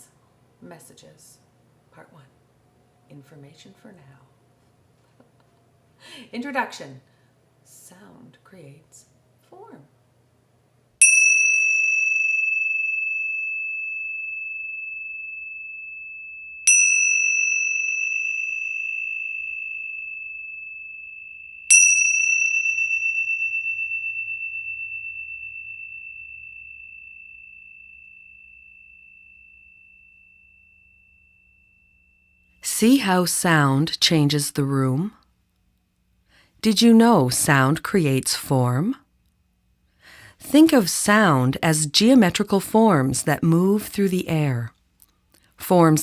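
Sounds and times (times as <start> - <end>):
high metal chime ringing: 11.0 - 32.7.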